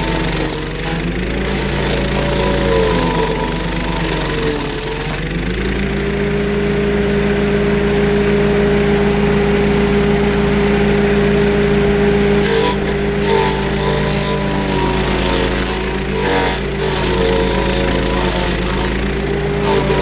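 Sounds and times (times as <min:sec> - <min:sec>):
cutter wheel chipping stump: 0:00.0 - 0:06.3, 0:12.2 - 0:20.0
petrol engine running: 0:00.0 - 0:20.0.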